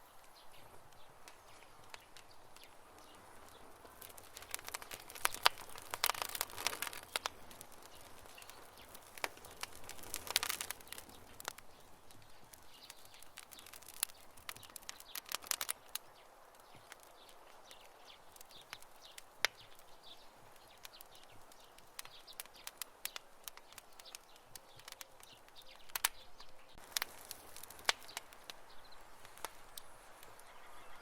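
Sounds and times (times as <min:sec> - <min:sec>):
burning wood snapping and popping: 0:00.0 - 0:30.7
campfire crackling: 0:00.0 - 0:31.0
soft fire hiss: 0:00.0 - 0:31.0.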